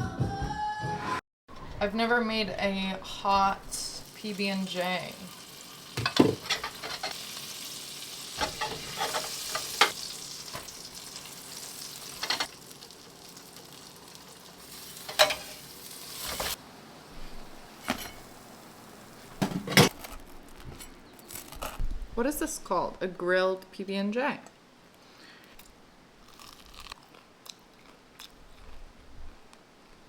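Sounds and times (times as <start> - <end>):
sandwich sizzling in a frying pan: 3.8 - 19.4
utensil tapping and scraping pan: 8.4 - 10.7.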